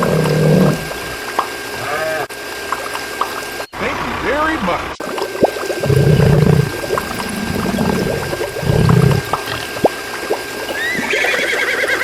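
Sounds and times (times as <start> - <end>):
small pump motor whine: 0.0 - 12.0
water pouring and splashing: 2.4 - 3.7, 5.0 - 12.0.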